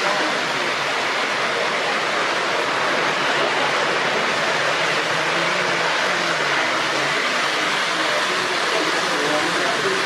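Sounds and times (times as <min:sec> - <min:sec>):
faint voices murmuring: 0:00.0 - 0:10.0
model trains rolling on track: 0:00.0 - 0:10.0.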